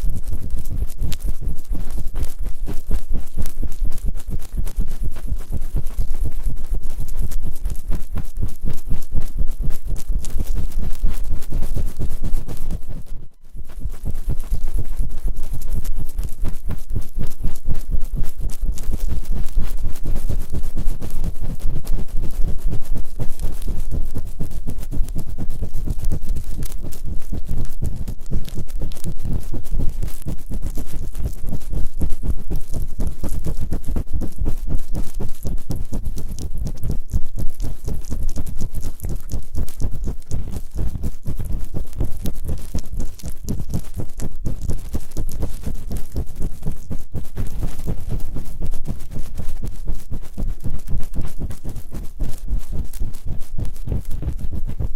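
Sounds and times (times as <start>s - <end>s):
scraping on a microphone: 0.0s - 54.9s.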